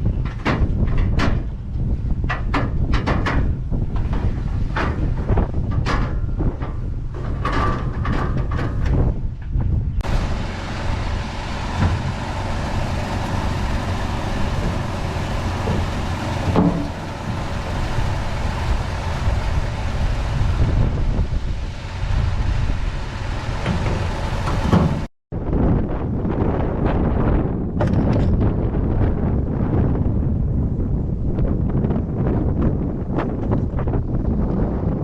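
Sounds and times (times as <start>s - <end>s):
diesel machinery rumbling: 0.0s - 25.1s.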